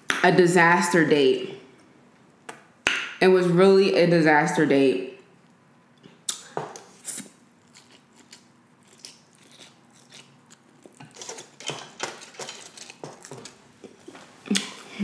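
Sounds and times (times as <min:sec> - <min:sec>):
wet mouth clicks and smacks: 0:06.2 - 0:08.0
chewing noodles: 0:07.0 - 0:14.9.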